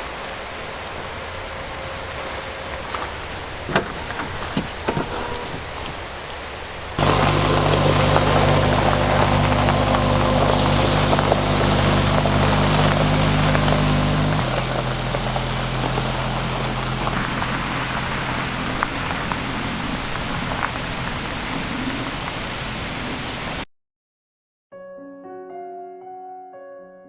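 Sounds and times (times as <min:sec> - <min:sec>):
engine starting and idling: 0:03.7 - 0:06.0, 0:07.0 - 0:21.2.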